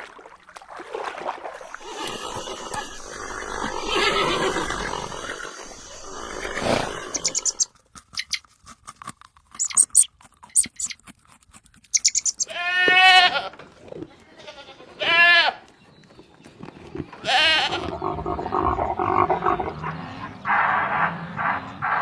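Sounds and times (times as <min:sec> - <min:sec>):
rough noisy animal sounds: 0:01.7 - 0:08.4, 0:09.0 - 0:22.0
goat bleating: 0:03.8 - 0:04.7, 0:12.4 - 0:13.6, 0:14.2 - 0:15.6, 0:17.2 - 0:18.7.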